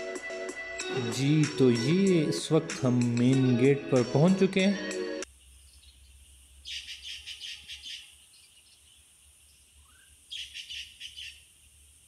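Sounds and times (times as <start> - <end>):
songbird chirping: 5.2 - 12.0.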